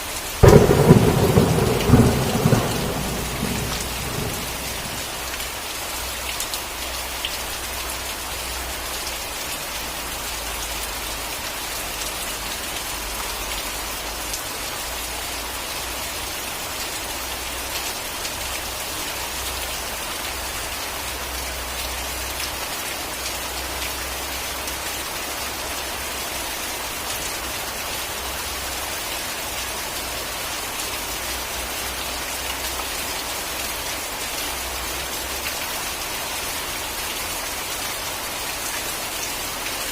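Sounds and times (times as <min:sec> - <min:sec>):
steady rain hiss: 0:00.0 - 0:39.9
raindrop ticks: 0:00.4 - 0:05.5.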